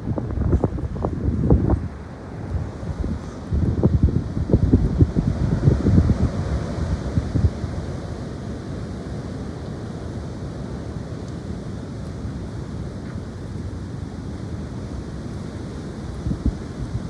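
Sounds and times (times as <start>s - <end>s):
wind buffeting microphone: 0.0s - 8.2s, 12.3s - 17.0s
high wind blowing: 0.0s - 17.0s.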